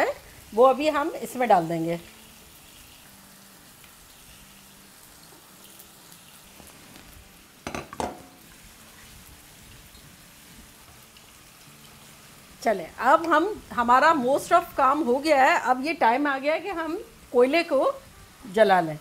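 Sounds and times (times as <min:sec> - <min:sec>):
masala sizzling in pan: 0:00.0 - 0:19.0.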